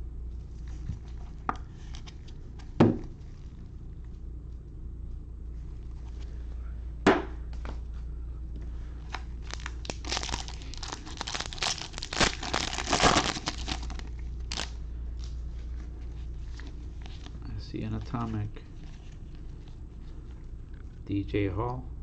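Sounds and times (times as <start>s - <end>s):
foil wrapper tearing and crinkling: 9.1s - 15.4s.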